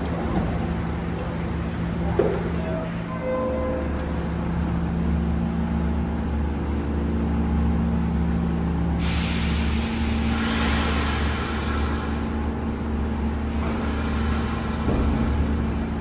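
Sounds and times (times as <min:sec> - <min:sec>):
train equipment low hum: 0:00.0 - 0:16.0
air brakes hissing: 0:09.0 - 0:12.2, 0:13.5 - 0:15.8.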